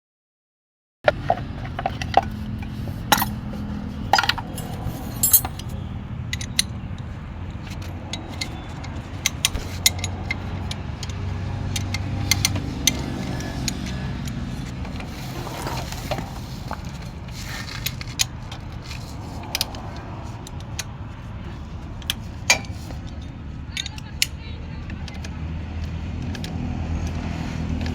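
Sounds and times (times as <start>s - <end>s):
metallic clinks of hand tools: 3.1s - 3.5s, 4.2s - 5.7s.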